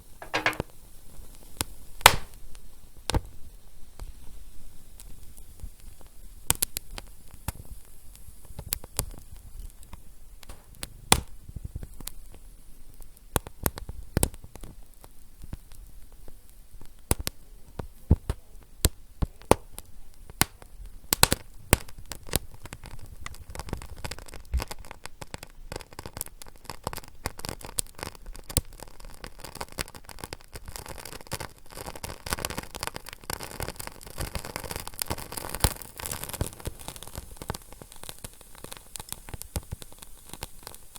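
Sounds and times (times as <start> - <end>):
low hiss: 0.0 - 0.8, 33.2 - 40.9
fire crackling: 0.2 - 40.9.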